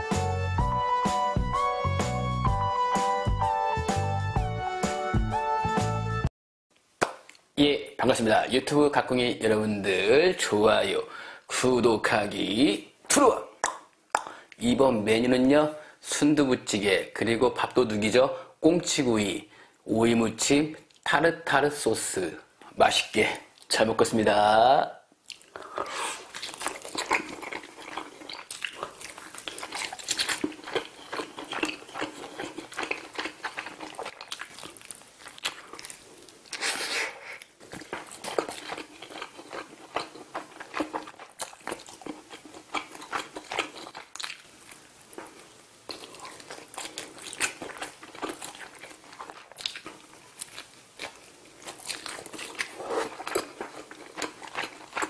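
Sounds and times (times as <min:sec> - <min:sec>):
crunchy chewing of grilled fish: 0:25.3 - 0:55.0.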